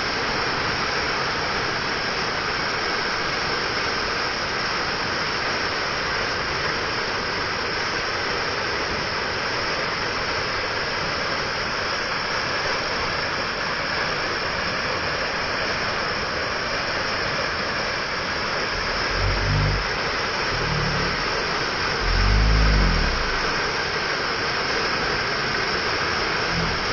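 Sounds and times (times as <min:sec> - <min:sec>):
waterfall rushing: 0:11.6 - 0:26.9
brief low rumbles: 0:18.7 - 0:23.8, 0:26.5 - 0:26.9.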